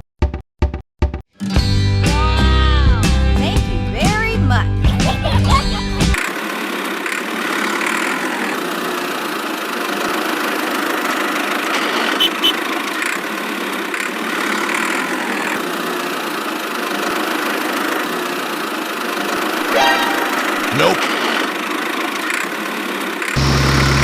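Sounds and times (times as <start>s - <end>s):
small engine droning: 5.2s - 24.0s.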